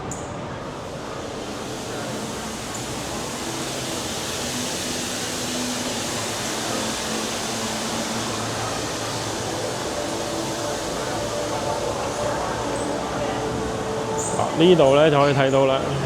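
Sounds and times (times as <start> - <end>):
distant crowd noise: 0.0 - 16.0
ventilation hiss: 0.0 - 16.0.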